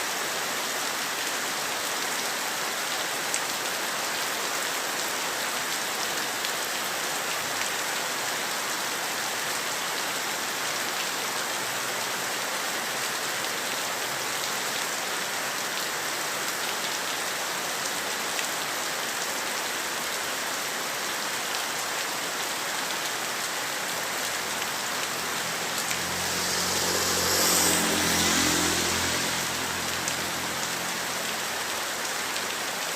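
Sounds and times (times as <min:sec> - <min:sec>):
heavy rain falling: 0:00.0 - 0:32.9
vehicle passing: 0:24.4 - 0:31.7.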